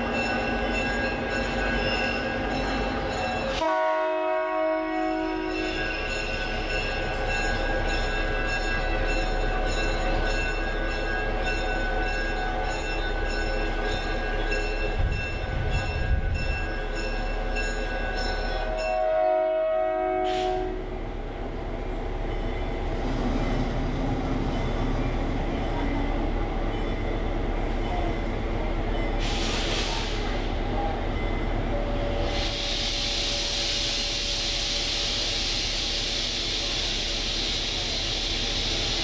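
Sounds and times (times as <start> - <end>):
train running noise: 0.0 - 39.0
locomotive air horn: 3.6 - 5.8, 18.6 - 20.9.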